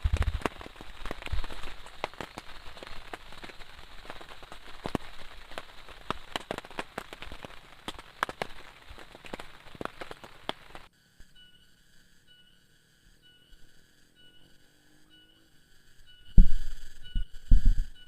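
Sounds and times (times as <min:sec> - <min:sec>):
heavy rain with sharp taps: 0:00.0 - 0:10.9.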